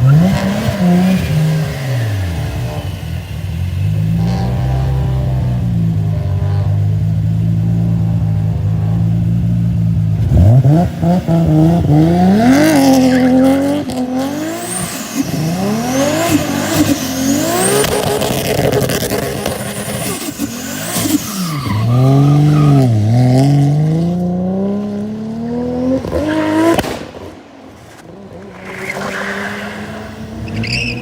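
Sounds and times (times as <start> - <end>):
car engines revving: 0.0 - 31.0
high squealing tones: 28.5 - 31.0.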